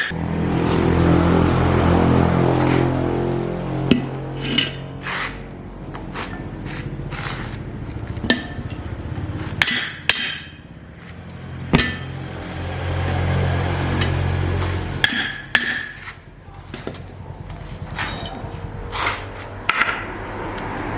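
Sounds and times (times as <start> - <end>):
hammer striking metal: 3.9 - 5.0, 8.2 - 8.9, 9.5 - 10.7, 11.7 - 12.2, 15.0 - 16.2.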